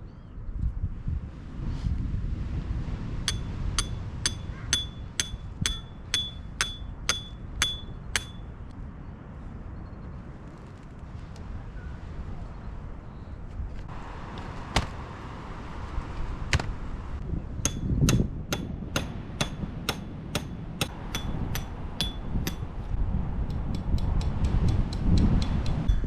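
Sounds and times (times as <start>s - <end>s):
hammer striking metal: 3.3s - 8.5s, 17.6s - 22.7s.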